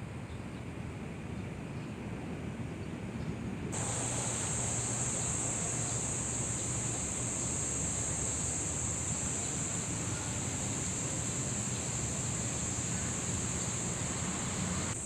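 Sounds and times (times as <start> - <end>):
low outdoor rumble: 0.0 - 15.0
insects buzzing: 3.7 - 15.0.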